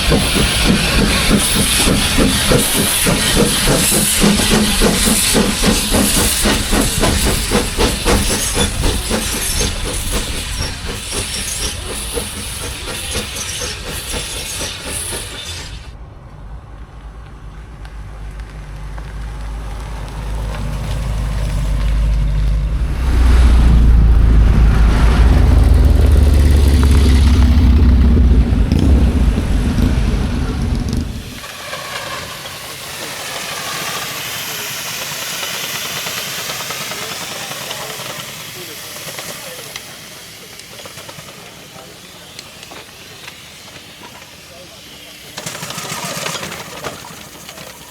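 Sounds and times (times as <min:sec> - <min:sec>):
steam hissing with rapid pulses: 0:00.0 - 0:16.0, 0:22.8 - 0:47.9
deep engine rumble: 0:15.9 - 0:31.4.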